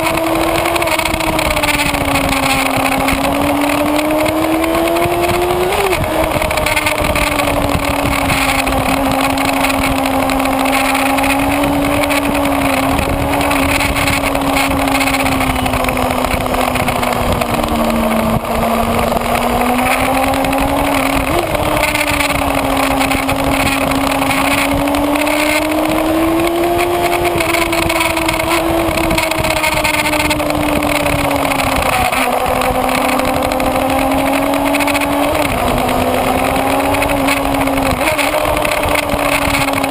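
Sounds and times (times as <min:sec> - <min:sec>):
motorcycle engine at high revs: 0:00.0 - 0:39.9
wind rush on microphone: 0:00.0 - 0:39.9.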